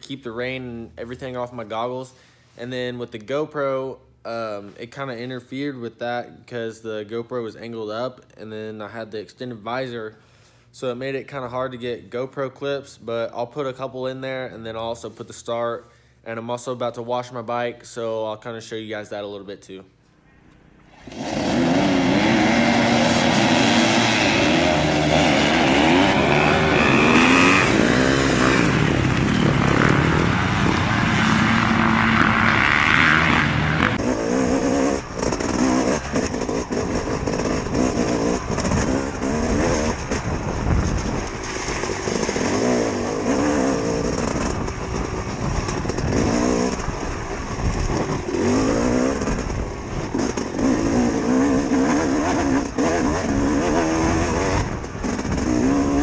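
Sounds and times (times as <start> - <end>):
dirt bike engines revving: 20.5 - 56.0.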